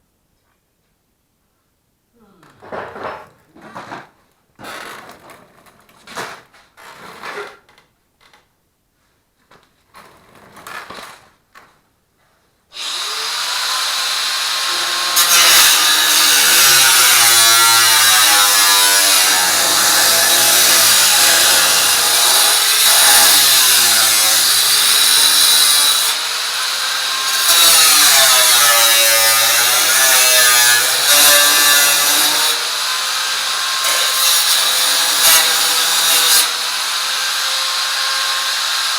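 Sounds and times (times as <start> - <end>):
power tool on steel barrel: 12.8 - 38.9.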